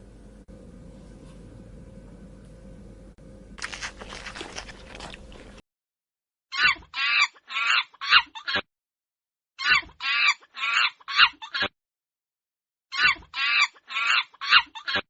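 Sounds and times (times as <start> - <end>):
low steady hum: 0.0 - 5.6
scratchy rustling: 3.6 - 5.6.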